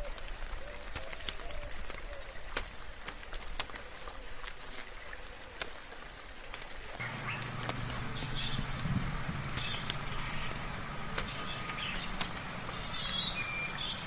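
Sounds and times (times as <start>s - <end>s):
sharp water drips: 0.0s - 14.0s
steady rain: 0.0s - 14.0s
birds calling: 7.0s - 14.0s
low steady hum: 7.0s - 14.0s.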